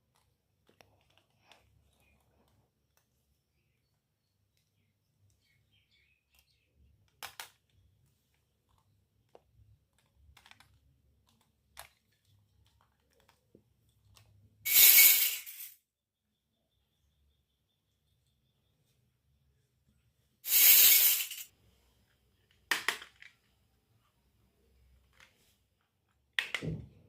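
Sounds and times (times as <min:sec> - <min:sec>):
toy pieces clicking and tapping: 0:07.1 - 0:07.8, 0:08.7 - 0:13.5.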